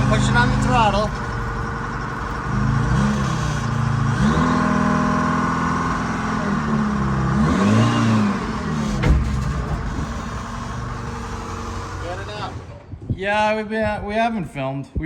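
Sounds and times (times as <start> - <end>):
vehicle engine revving: 0.0 - 12.9
sharp bang: 8.8 - 10.4.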